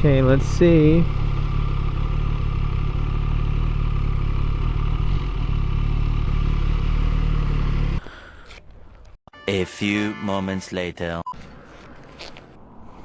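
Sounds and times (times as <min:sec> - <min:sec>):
motorcycle engine running at low revs: 0:00.0 - 0:08.1.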